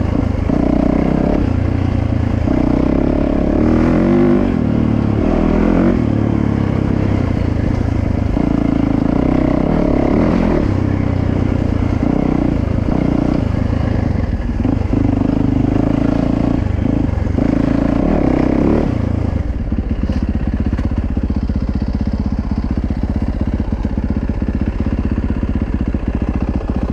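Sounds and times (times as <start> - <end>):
dirt bike engine revving: 0.0 - 19.6.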